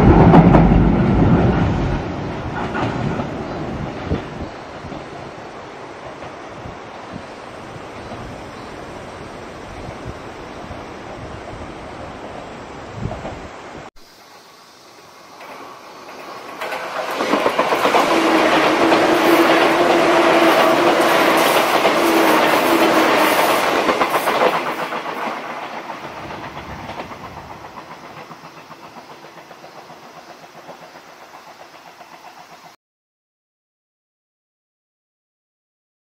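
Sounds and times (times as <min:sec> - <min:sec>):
wheels clickety-clack over rail joints: 0:00.0 - 0:08.4, 0:15.4 - 0:32.8
train passing: 0:00.0 - 0:32.8.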